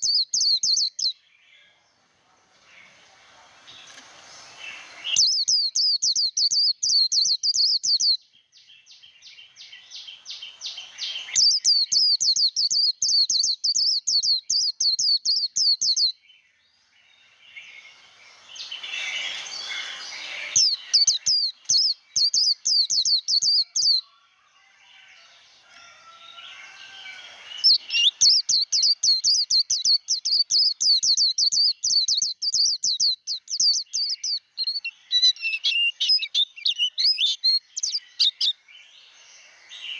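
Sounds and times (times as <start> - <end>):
bird singing fast high notes: 17.7 - 21.7.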